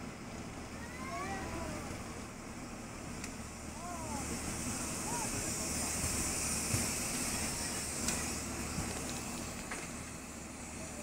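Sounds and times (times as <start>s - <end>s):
cabin ventilation hiss: 2.7s - 11.0s.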